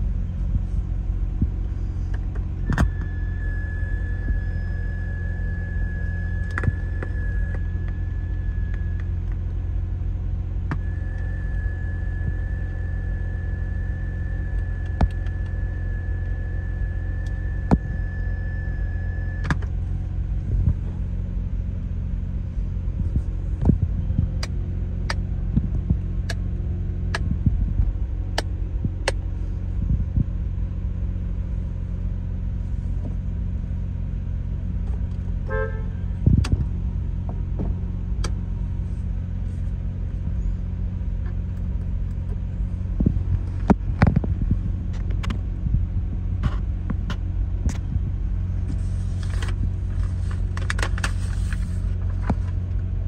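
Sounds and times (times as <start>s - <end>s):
rotary engine idling: 0.0s - 53.0s
steady high tone: 2.6s - 9.2s, 10.8s - 19.5s.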